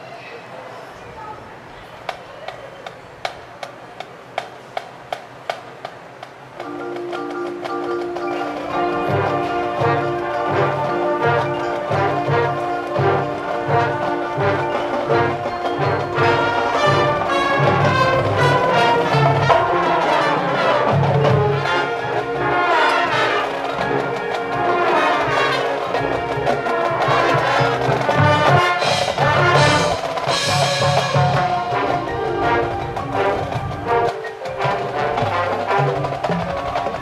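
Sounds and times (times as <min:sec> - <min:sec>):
marching band percussion: 0:02.0 - 0:37.0
brass sustained chords: 0:08.7 - 0:36.2.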